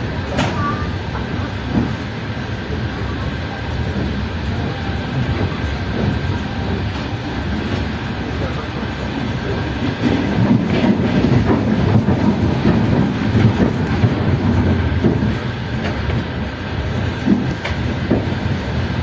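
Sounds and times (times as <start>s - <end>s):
train wheels rumbling: 0.0s - 19.0s
wheels clicking over rail joints: 5.2s - 19.0s.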